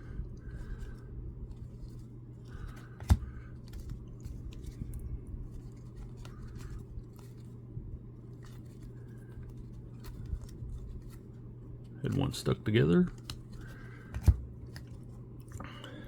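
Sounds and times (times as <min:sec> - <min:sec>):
steady low hum: 0:00.0 - 0:16.0
cards rustling and scraping: 0:00.4 - 0:15.8.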